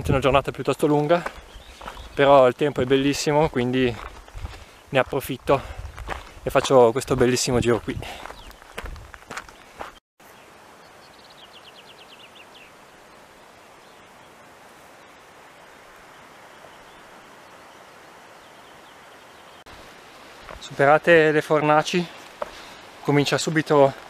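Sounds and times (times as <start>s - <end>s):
songbird singing falling notes: 0.9s - 2.4s
outdoor hiss: 10.2s - 24.0s.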